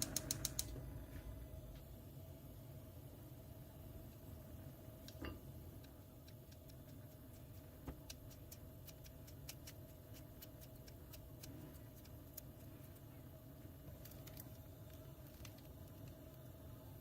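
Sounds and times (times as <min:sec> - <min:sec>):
low steady hum: 0:00.0 - 0:17.0
small ticks: 0:05.8 - 0:13.1.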